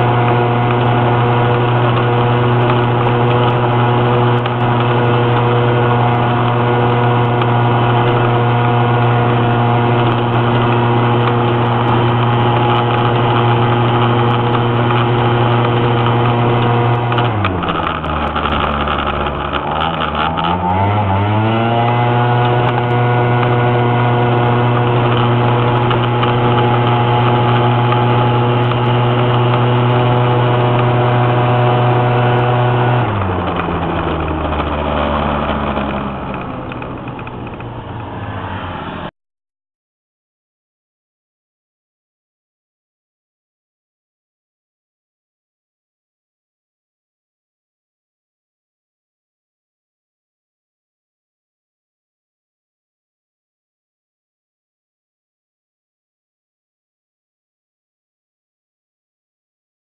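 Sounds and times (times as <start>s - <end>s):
car engine pulling uphill: 0.0s - 39.1s.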